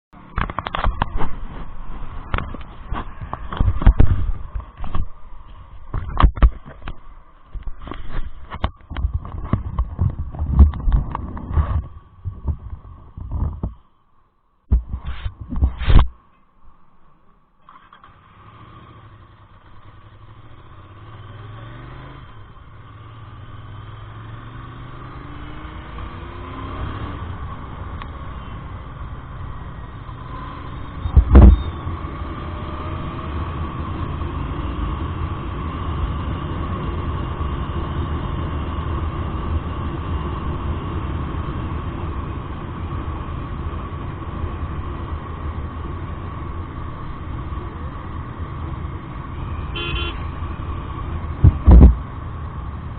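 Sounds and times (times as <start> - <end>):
road and wind noise: 0.1 - 52.9
motorcycle engine accelerating: 17.7 - 52.9
loud thump: 31.1 - 31.6, 51.4 - 52.0.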